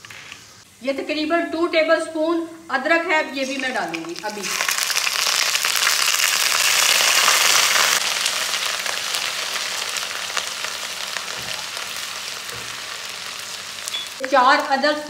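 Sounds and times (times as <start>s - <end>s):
garlic and ginger sizzling in oil: 3.1s - 15.0s.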